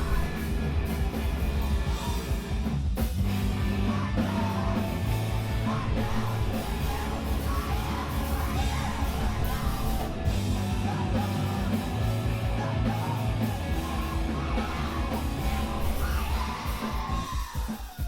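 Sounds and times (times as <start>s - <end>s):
live rock band playing: 0.0s - 18.0s
screamed vocals: 3.6s - 18.0s.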